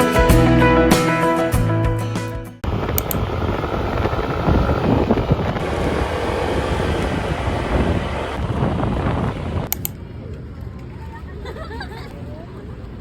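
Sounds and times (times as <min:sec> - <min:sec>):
wind buffeting microphone: 0:02.6 - 0:11.0
sharp clicks: 0:02.9 - 0:03.2, 0:09.6 - 0:10.0.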